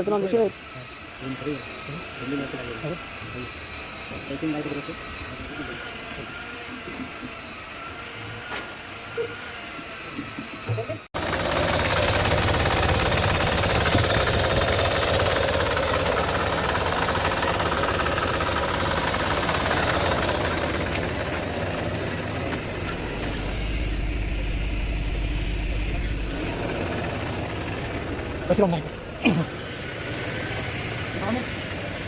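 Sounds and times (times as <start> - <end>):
car engine running: 11.2 - 32.0
deep low hum: 21.9 - 29.5.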